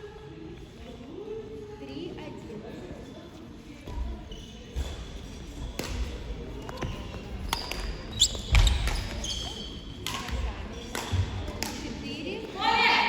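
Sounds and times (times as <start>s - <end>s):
voices in background: 0.0s - 13.0s
rackets hitting shuttlecock: 10.0s - 12.0s.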